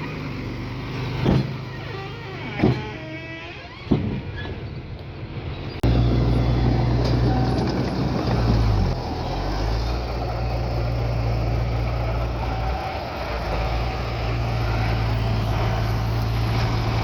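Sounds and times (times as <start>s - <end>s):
heavy diesel engine running: 5.0s - 17.0s.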